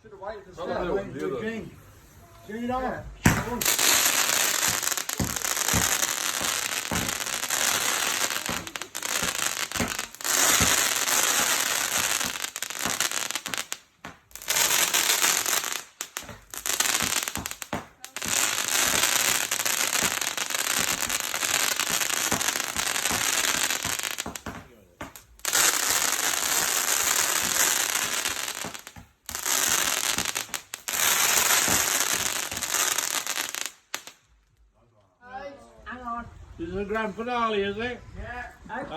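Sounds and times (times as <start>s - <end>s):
deep firework thuds: 3.2s - 33.4s
fireworks crackling: 3.2s - 34.6s.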